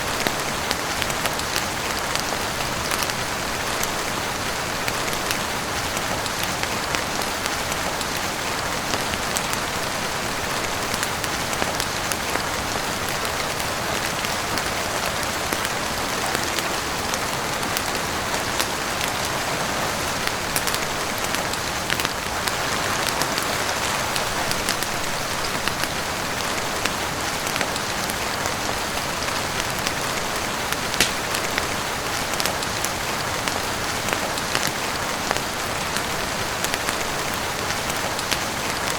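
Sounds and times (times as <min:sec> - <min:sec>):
heavy rain on a roof: 0:00.0 - 0:38.9
wood fire crackling: 0:29.5 - 0:33.0.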